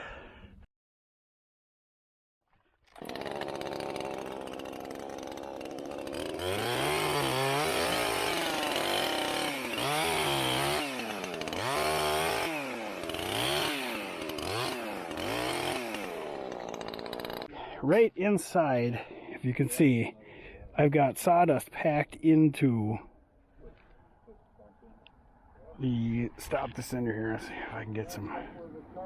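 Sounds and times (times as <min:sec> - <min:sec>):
chainsaw cutting wood: 0:02.9 - 0:17.5.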